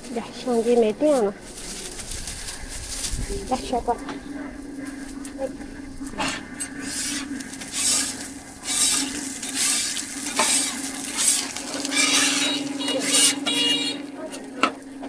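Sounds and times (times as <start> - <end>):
metal spatula scraping griddle: 6.2 - 14.7
food sizzling: 6.8 - 14.6.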